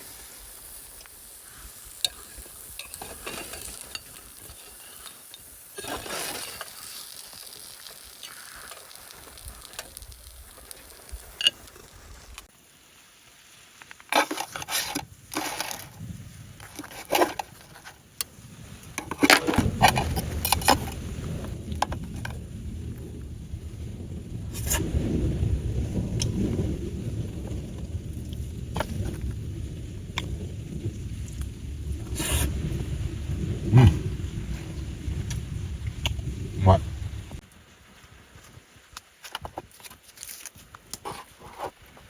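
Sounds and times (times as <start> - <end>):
food sizzling in a pot: 0.0 - 22.4
low rumble: 19.6 - 37.4.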